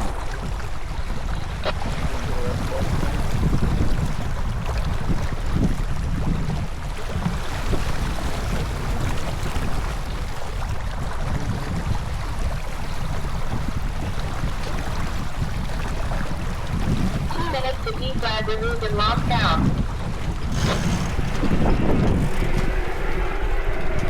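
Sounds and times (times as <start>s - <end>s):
wind rumble on microphone: 0.0s - 24.0s
water rushing: 12.1s - 24.0s.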